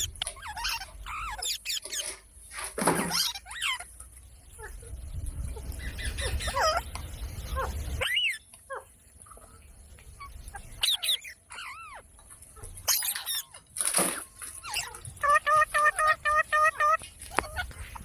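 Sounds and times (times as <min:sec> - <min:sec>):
parrot squawking: 0:00.0 - 0:02.2, 0:03.0 - 0:03.9, 0:07.6 - 0:08.4, 0:10.2 - 0:12.1, 0:12.8 - 0:13.6.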